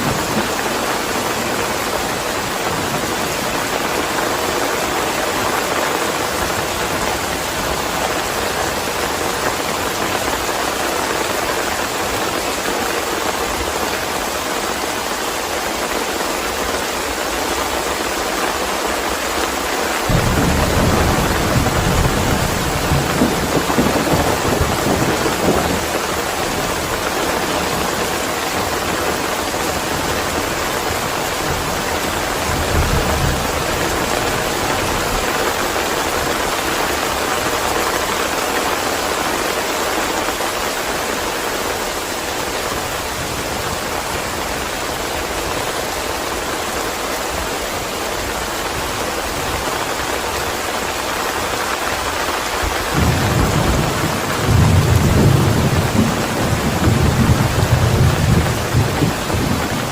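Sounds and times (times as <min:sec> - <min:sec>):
heavy rain: 0:00.0 - 0:59.9
thunder rumbling: 0:20.0 - 0:38.0, 0:52.6 - 0:59.9.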